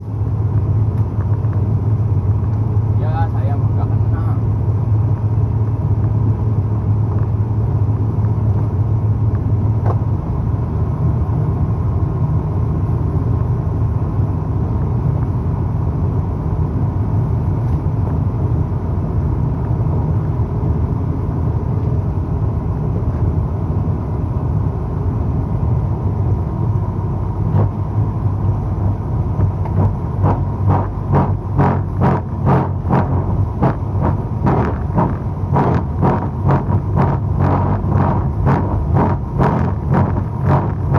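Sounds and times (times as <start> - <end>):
boat engine humming: 0.0 - 17.6, 23.8 - 40.9
rhythmic pulsing: 29.7 - 40.9.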